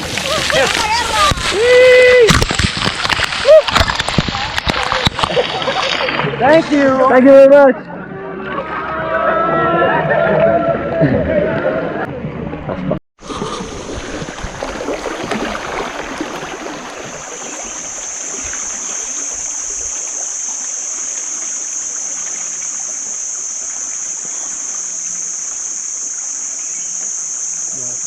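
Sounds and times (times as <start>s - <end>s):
river water rushing and splashing: 13.2s - 24.6s
high-pitched insect chorus: 14.7s - 28.0s.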